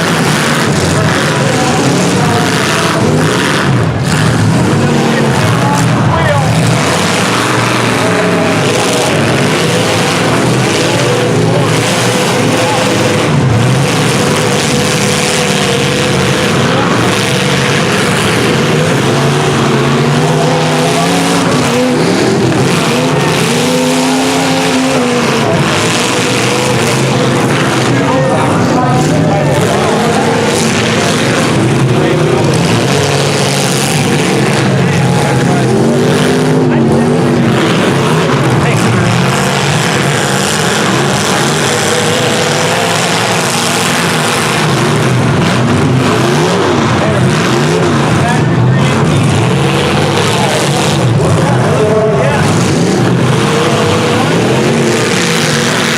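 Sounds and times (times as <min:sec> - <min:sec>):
engines revving: 0:00.0 - 0:55.9.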